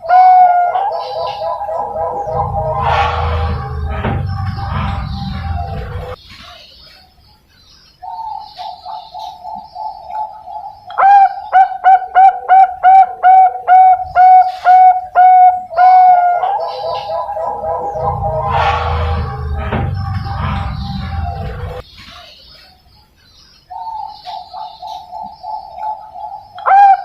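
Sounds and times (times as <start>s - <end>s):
dove cooing: 0.0s - 3.0s, 8.6s - 18.5s, 24.0s - 27.0s.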